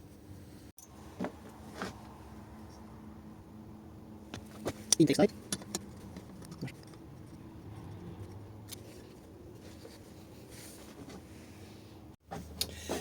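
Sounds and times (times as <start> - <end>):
hand tools clicking and scraping: 4.4 - 9.3.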